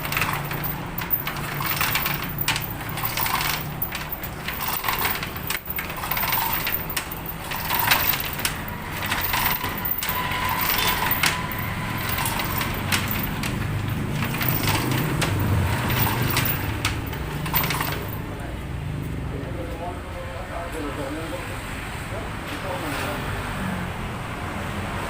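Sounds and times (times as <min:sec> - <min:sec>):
metallic clinks of tools and parts: 0:00.0 - 0:18.2.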